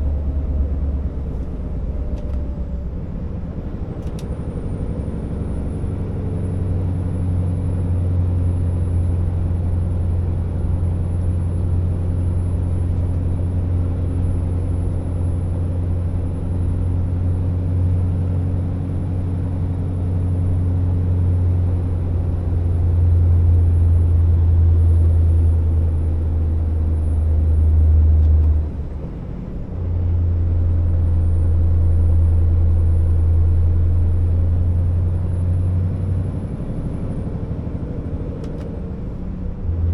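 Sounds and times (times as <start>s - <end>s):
truck diesel engine droning: 0.0s - 39.9s.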